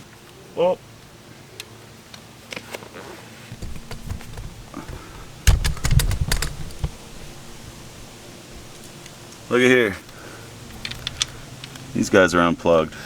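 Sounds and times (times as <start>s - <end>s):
clicks and knocks of tools: 3.5s - 7.2s, 10.1s - 11.9s.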